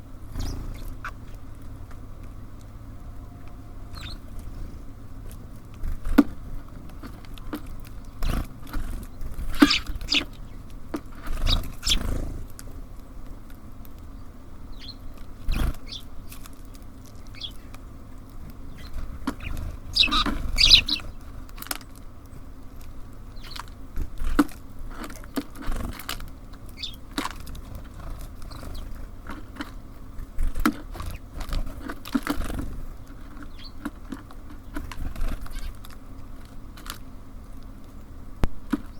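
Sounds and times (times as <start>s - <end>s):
birds pecking on feeder: 0.0s - 38.9s
steady low hum: 0.0s - 38.9s
short high bird chirps: 18.8s - 21.1s.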